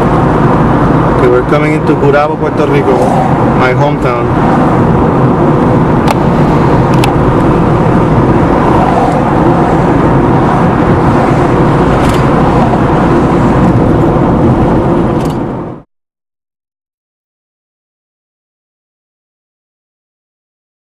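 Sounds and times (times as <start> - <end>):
car driving on road: 0.0 - 15.9.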